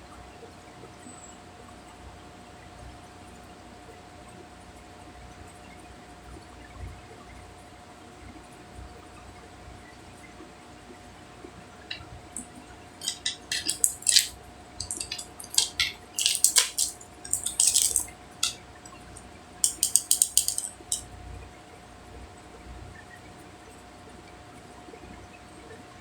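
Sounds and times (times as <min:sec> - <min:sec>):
plastic cases clicking and tapping: 0:13.0 - 0:18.6, 0:19.6 - 0:21.0.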